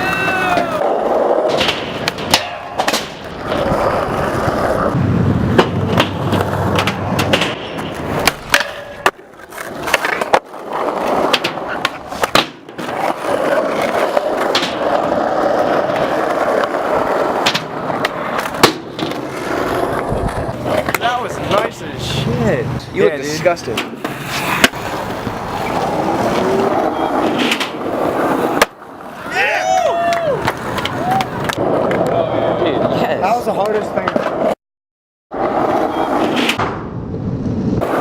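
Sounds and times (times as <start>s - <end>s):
skateboard wheels rolling: 0.0s - 34.6s, 35.3s - 38.0s
skateboard clacking on ground: 1.4s - 4.8s, 5.5s - 21.7s, 30.0s - 32.3s.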